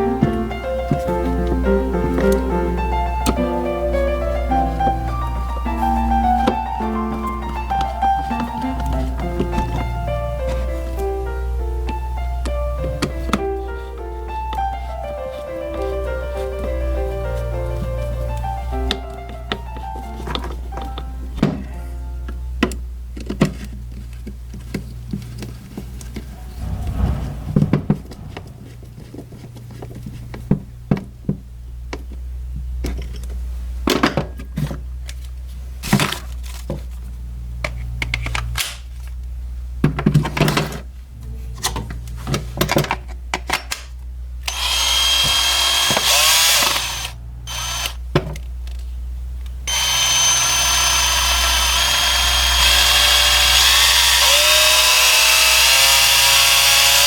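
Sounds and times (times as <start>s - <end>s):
cordless drill motor running: 44.5s - 48.0s, 49.7s - 57.0s
drill being handled clicks: 44.5s - 48.0s.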